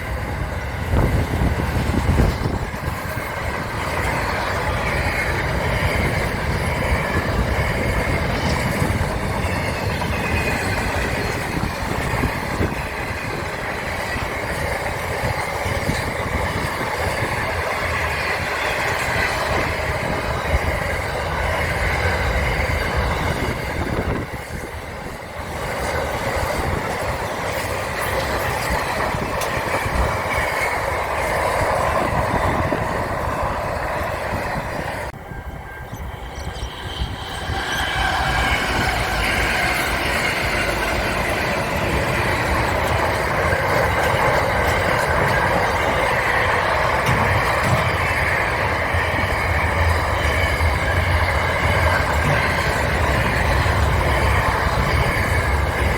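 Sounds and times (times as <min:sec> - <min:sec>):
train rumbling on rails: 0:00.0 - 0:55.9
high ringing from wheels: 0:35.1 - 0:55.9.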